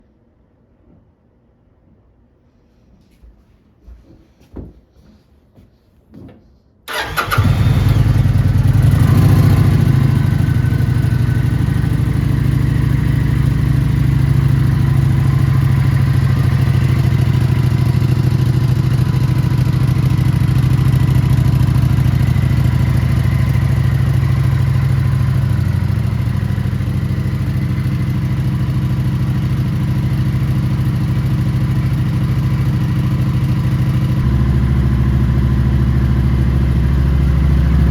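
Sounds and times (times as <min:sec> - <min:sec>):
motorcycle engine starting and idling: 0:06.9 - 0:37.9.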